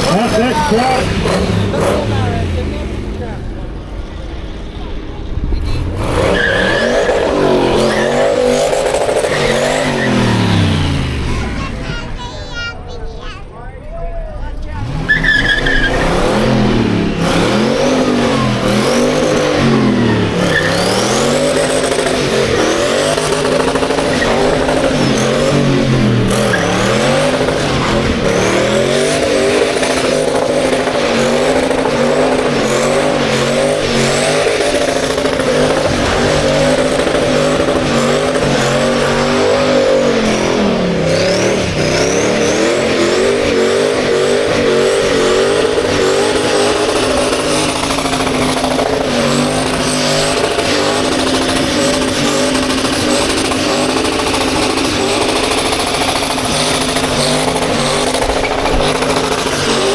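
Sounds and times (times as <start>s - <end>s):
car engine revving hard: 0.0s - 4.7s, 5.6s - 12.3s, 14.7s - 59.9s.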